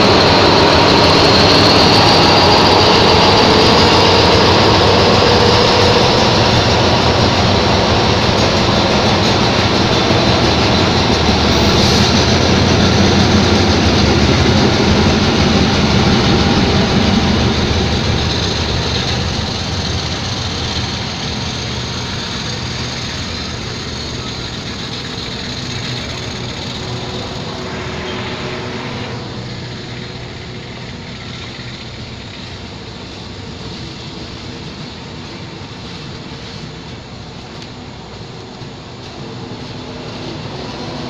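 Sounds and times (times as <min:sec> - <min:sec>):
diesel locomotive engine hum: 0:00.0 - 0:41.0
train coaches rumbling on rails: 0:00.0 - 0:41.0.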